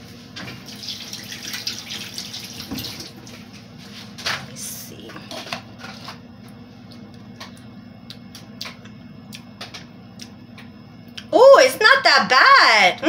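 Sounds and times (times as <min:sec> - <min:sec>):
steady low hum: 0:03.0 - 0:13.0
person chewing: 0:06.5 - 0:10.4.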